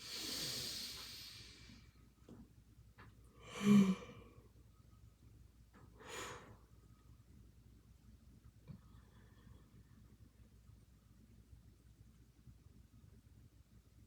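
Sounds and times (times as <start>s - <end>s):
person breathing deeply: 0.0s - 1.9s, 3.4s - 4.3s
voiced sigh: 3.4s - 4.3s.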